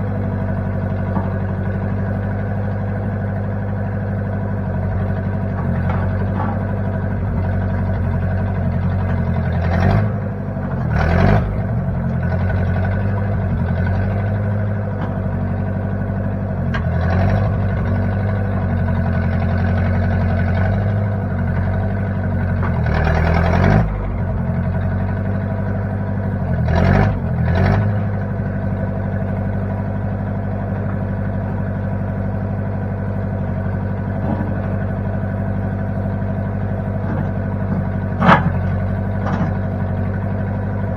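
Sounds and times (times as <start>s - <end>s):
backhoe engine running: 0.0s - 40.9s.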